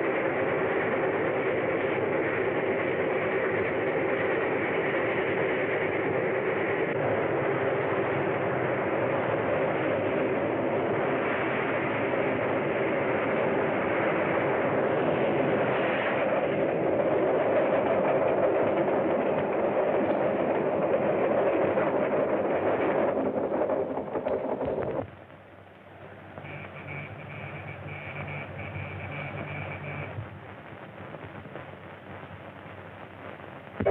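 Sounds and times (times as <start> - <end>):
droning pitched tone: 26.0 - 32.8.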